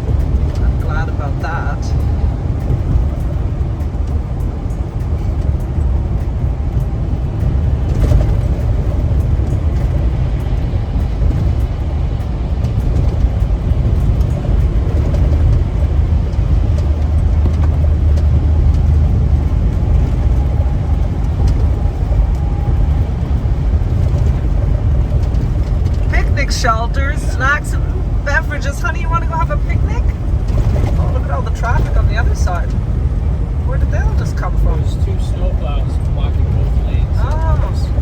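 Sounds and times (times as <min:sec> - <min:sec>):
truck engine and road rumble: 0:00.0 - 0:38.0.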